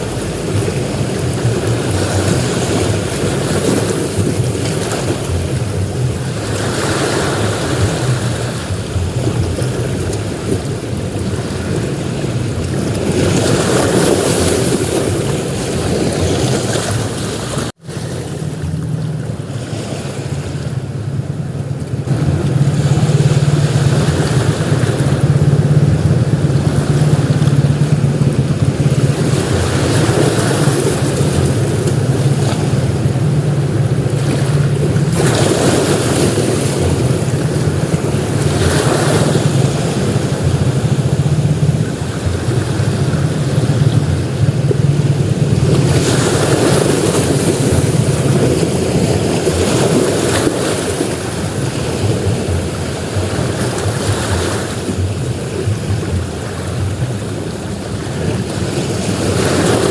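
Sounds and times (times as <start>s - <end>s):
surf breaking on beach: 0.0s - 59.9s
low rumble: 20.2s - 48.7s.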